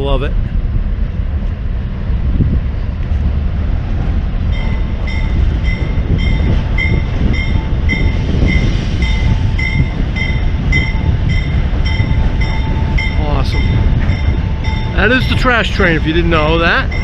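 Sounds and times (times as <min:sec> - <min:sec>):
freight train rumbling: 0:00.0 - 0:17.0
bell ringing: 0:04.5 - 0:15.9.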